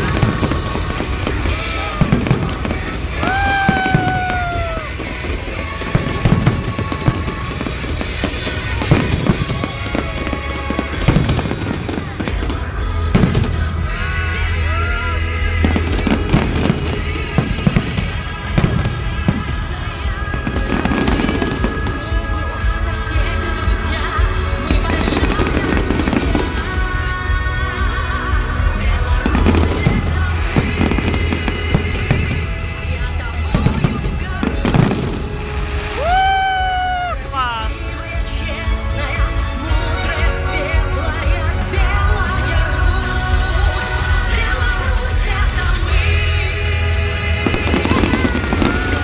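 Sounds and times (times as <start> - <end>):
fireworks bangs and crackling: 0.0 - 49.0
music playing: 0.0 - 49.0
deep rumbling booms: 28.8 - 36.4.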